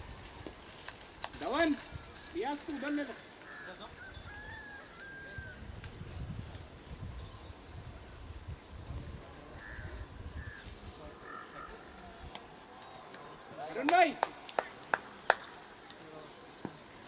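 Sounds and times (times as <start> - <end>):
birds whistling and chirping: 3.4 - 7.7.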